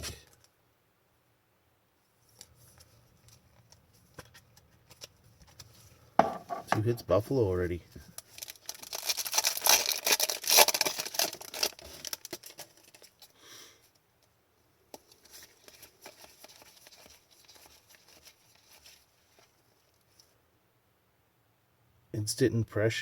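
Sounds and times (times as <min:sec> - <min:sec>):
card pack wrapper crinkling and tearing: 0:03.2 - 0:05.8, 0:08.0 - 0:13.3, 0:15.0 - 0:19.5.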